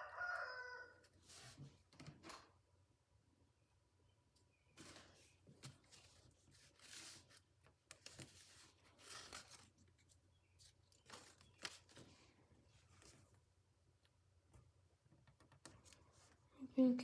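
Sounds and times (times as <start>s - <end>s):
paper rustling and crinkling: 4.8s - 13.4s.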